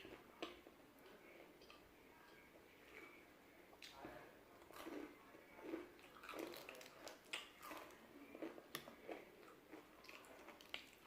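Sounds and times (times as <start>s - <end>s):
crunchy chewing: 3.8s - 11.0s.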